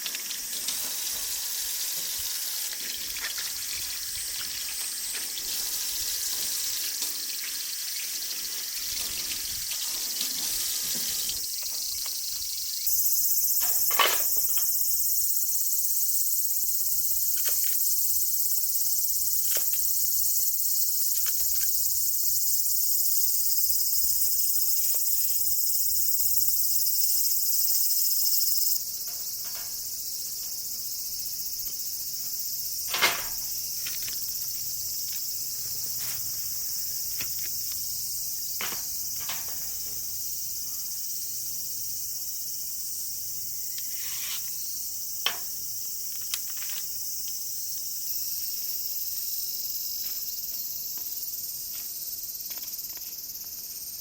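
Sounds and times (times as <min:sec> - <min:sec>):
insects chirring: 0:00.0 - 0:54.0
sharp clicks and knocks: 0:32.9 - 0:34.2, 0:38.6 - 0:39.8, 0:45.2 - 0:45.5.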